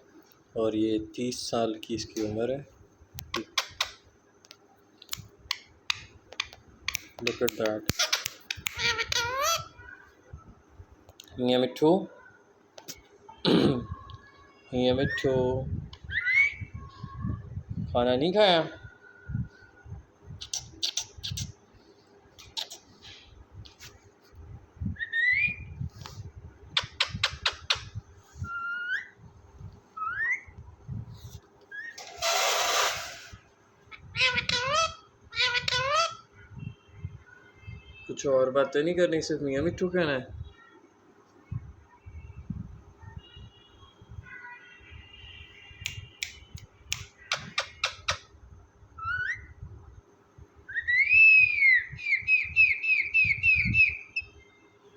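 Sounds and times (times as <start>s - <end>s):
parrot clicking: 5.1s - 9.3s
parrot calling: 5.9s - 10.0s, 26.8s - 29.2s, 33.9s - 36.3s, 47.2s - 48.2s, 50.7s - 54.3s
parrot squawk: 7.9s - 9.8s, 33.9s - 36.3s
parrot whistling: 50.7s - 54.3s.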